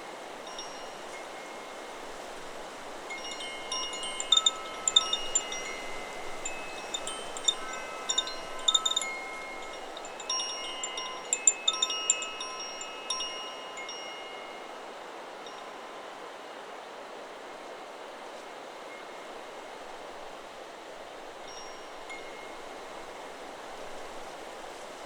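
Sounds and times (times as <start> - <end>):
wind hiss: 0.0 - 25.0
wind chime ringing: 0.5 - 2.2, 3.0 - 14.8.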